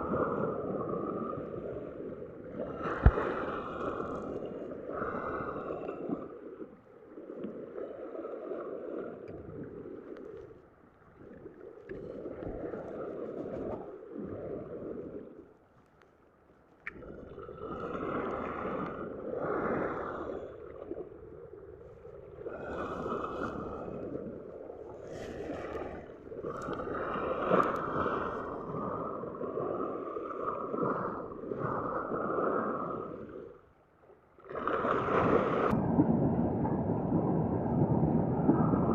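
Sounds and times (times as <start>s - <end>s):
waves washing on shore: 0.0s - 10.5s, 16.9s - 33.6s, 34.4s - 38.9s.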